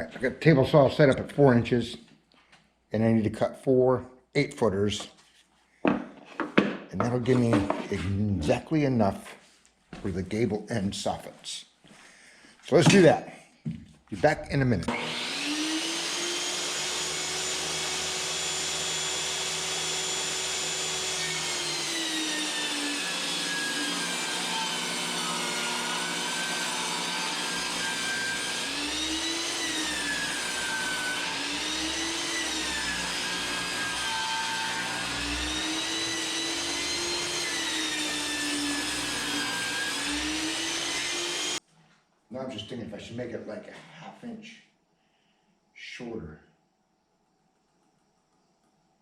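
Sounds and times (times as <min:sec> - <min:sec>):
table saw ripping boards: 0:05.9 - 0:08.6, 0:14.9 - 0:41.6.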